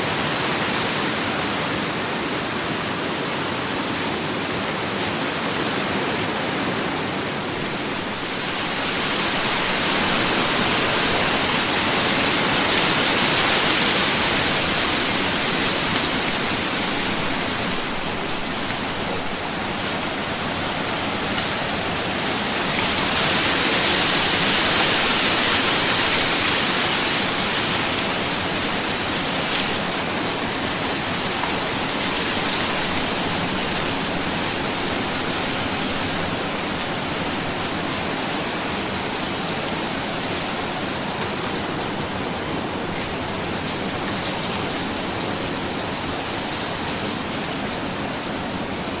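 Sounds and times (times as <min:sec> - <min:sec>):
ocean waves washing onto beach: 0:00.0 - 0:49.0.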